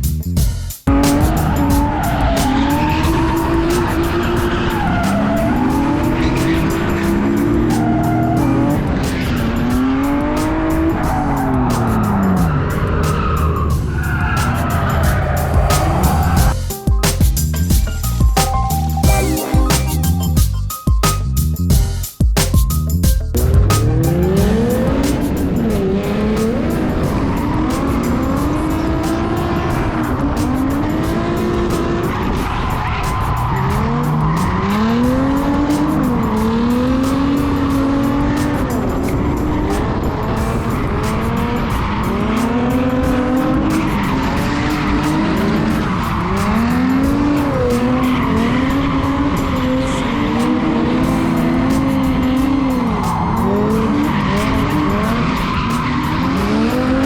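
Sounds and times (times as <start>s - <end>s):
car engine revving: 0.8s - 16.6s, 23.3s - 57.0s
tyres squealing: 0.9s - 21.3s.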